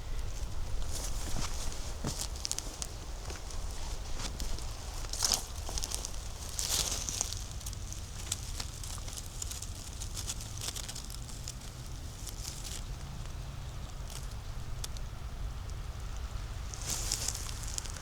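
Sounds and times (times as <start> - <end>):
low steady rumble: 0.0 - 18.0
footsteps crunching through dry leaves: 0.2 - 12.9, 16.7 - 18.0.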